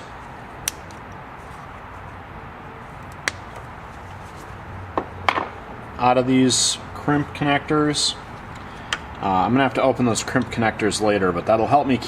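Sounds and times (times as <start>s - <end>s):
wire cutters snipping: 0.0s - 1.2s
low background hum: 0.0s - 12.0s.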